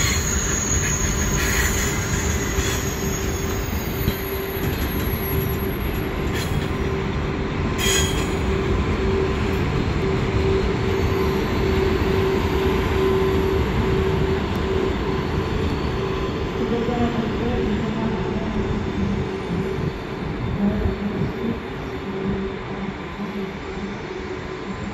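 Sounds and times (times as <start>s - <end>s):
high-pitched wheel squeals: 0.0s - 6.8s, 7.8s - 8.7s
train wheels rumbling on rails: 0.0s - 24.9s.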